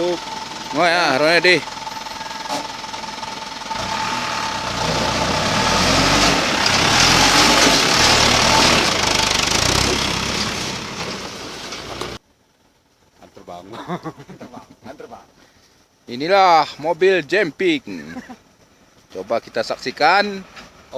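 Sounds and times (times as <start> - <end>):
dump truck engine working hard: 0.0 - 12.2.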